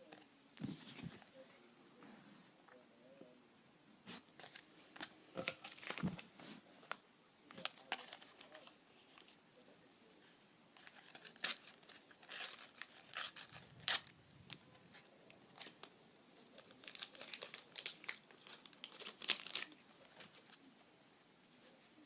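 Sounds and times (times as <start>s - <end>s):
packets tearing open: 10.8s - 14.1s, 16.6s - 19.8s
wrappers crinkling: 10.8s - 14.6s, 15.5s - 20.4s.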